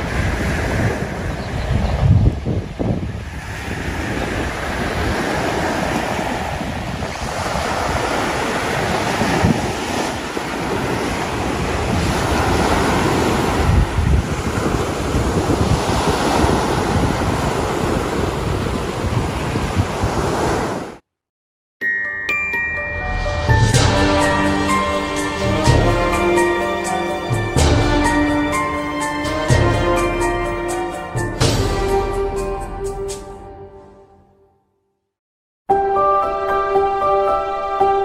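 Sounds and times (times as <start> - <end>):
waves washing onto beach: 0.0 - 21.0
wind buffeting microphone: 0.0 - 21.0.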